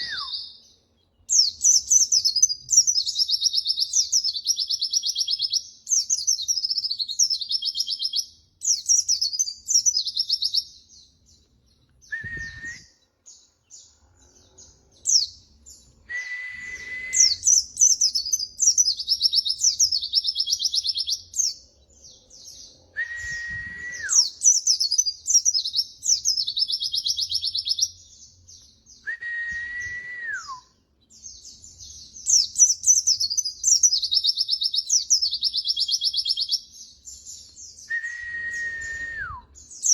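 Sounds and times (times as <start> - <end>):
low steady whistle: 0.0 - 0.3, 12.1 - 13.0, 16.0 - 17.5, 22.9 - 24.3, 29.0 - 30.8, 37.9 - 39.5
bird twittering chirps: 0.0 - 29.1, 30.7 - 39.9.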